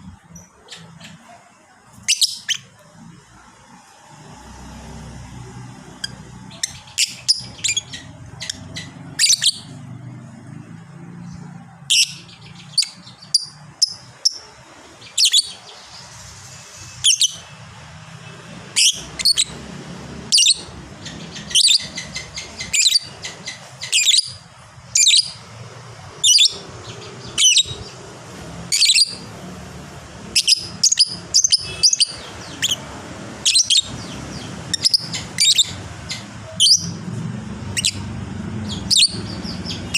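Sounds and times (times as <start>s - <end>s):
lovebird chirping: 2.0s - 2.8s, 4.8s - 10.0s, 11.0s - 16.3s, 16.9s - 17.6s, 18.6s - 25.4s, 26.1s - 29.3s, 30.2s - 37.0s, 37.7s - 39.9s.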